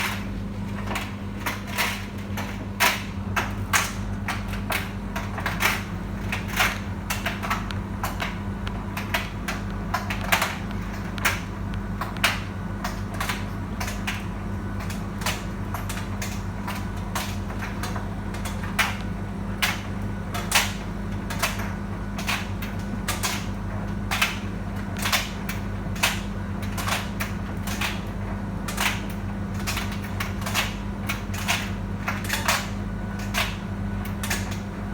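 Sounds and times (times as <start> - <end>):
clothes knocking in dryer drum: 0.0 - 21.2
tumble dryer motor hum: 0.0 - 34.9.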